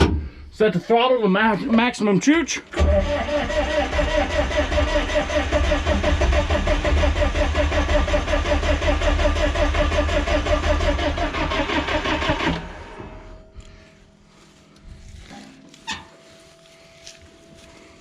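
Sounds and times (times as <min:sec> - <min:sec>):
diesel engine starter cranking: 0:02.7 - 0:13.4.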